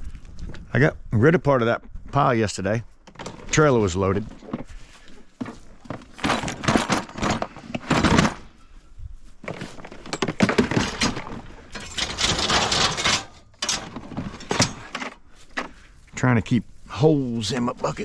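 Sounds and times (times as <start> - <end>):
scrap metal clattering: 9.6 - 15.2.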